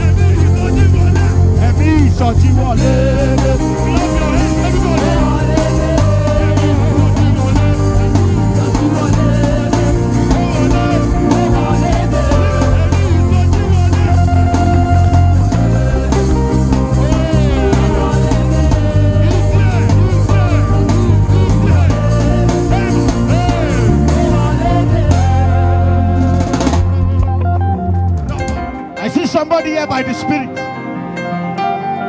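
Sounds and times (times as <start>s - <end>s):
heavy bass: 0.0s - 29.0s
drum kit beat: 0.0s - 29.3s
live band playing worship music: 0.0s - 32.0s.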